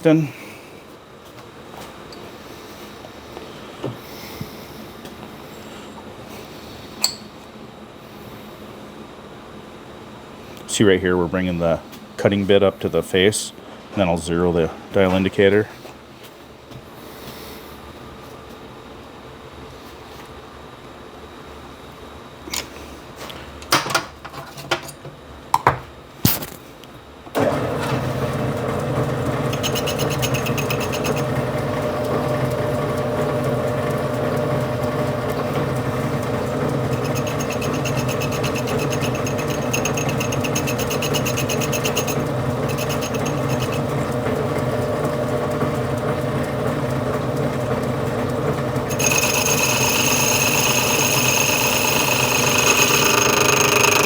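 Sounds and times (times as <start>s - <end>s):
metal lathe running: 27.4s - 54.0s
sharp clicks and knocks: 27.8s - 54.0s
high ringing: 29.4s - 32.6s, 36.0s - 43.9s, 48.8s - 54.0s.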